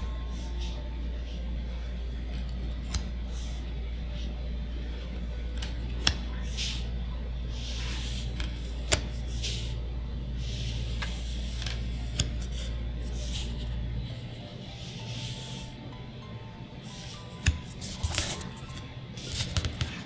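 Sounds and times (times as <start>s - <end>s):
cards rustling and sliding: 7.6s - 9.7s, 10.4s - 13.7s, 16.9s - 20.0s.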